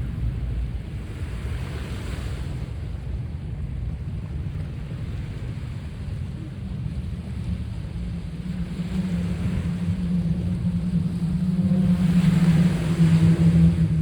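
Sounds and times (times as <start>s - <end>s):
sea waves washing on shore: 0.0s - 14.0s
wind rumble on microphone: 0.0s - 14.0s.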